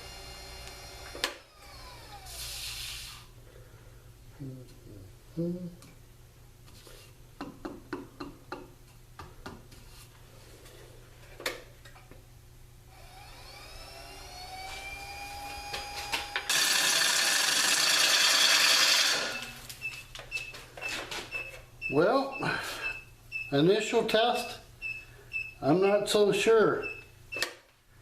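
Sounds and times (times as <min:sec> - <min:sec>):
lathe motor whine: 0:00.0 - 0:02.4, 0:12.9 - 0:19.6.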